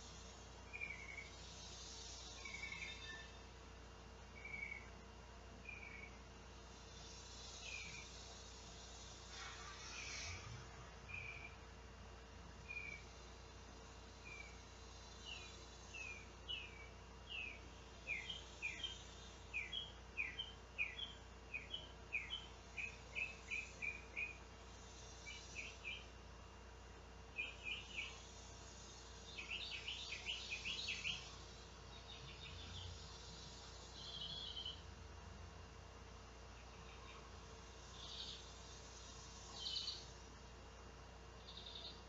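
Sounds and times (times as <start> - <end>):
faint steady hum: 0.0 - 42.0
songbird whistling notes: 4.4 - 4.9, 5.6 - 6.2, 11.1 - 11.6, 12.7 - 13.0.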